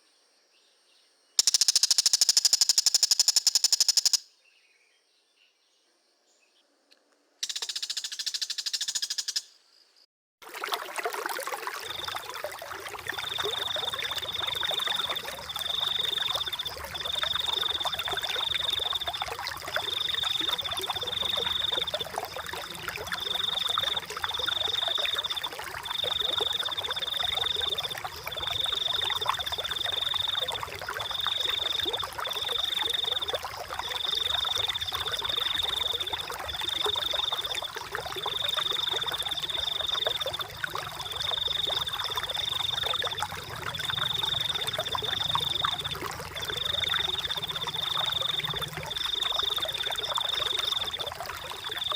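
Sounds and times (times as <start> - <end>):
high trilling call: 1.4 - 4.3
water trickling and babbling: 10.4 - 51.9.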